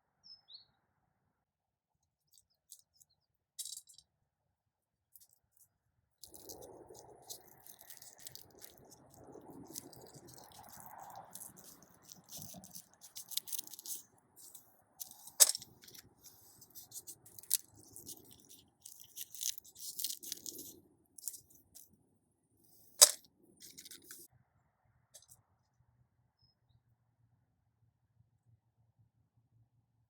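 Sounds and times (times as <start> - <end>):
bean pods snapping: 6.2 - 21.6
crackling plant rustles: 6.2 - 21.9, 22.8 - 24.3.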